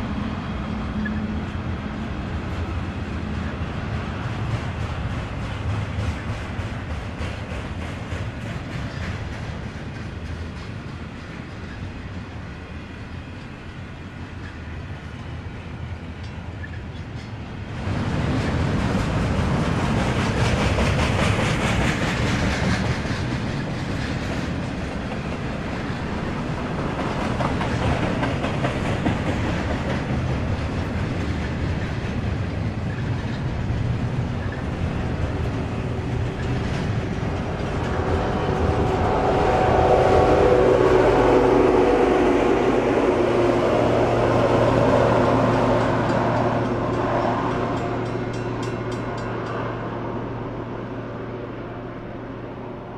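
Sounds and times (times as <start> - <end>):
train rumbling past: 0.0 - 52.9.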